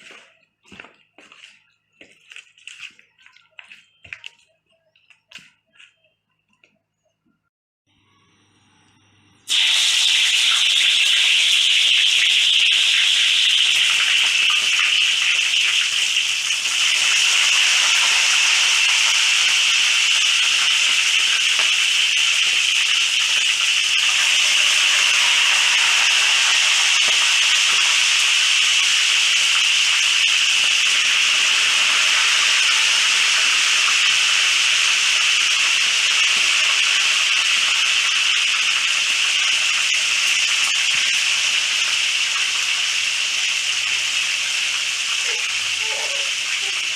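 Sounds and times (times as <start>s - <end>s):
meat deep-frying in hot oil: 9.5s - 46.9s.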